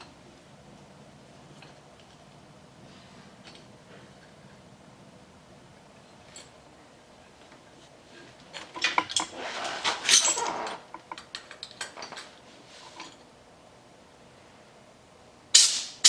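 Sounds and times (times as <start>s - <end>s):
metal parts and tools clinking: 8.6s - 13.2s
scraping rattle: 8.6s - 13.2s.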